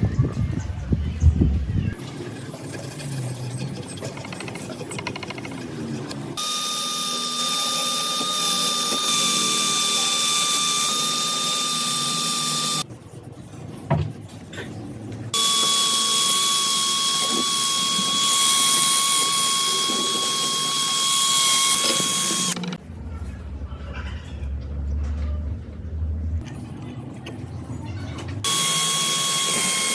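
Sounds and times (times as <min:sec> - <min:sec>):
power tool whining: 0:06.0 - 0:12.8, 0:15.4 - 0:22.8, 0:28.4 - 0:29.9.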